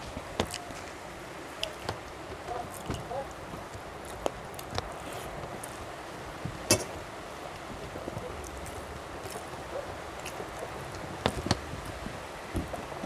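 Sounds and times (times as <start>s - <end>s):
steady background hiss: 0.0s - 13.0s
person chewing: 8.4s - 12.0s.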